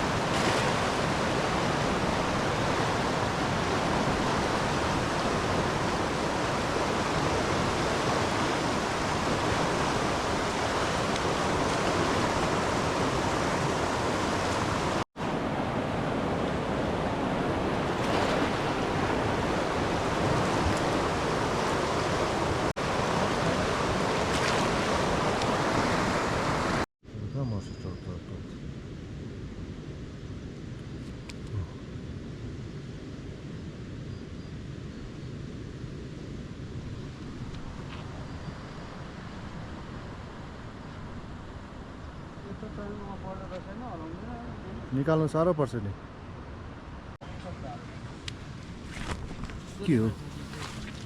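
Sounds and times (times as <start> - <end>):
fast-flowing river water: 0.0 - 26.8, 49.7 - 51.0.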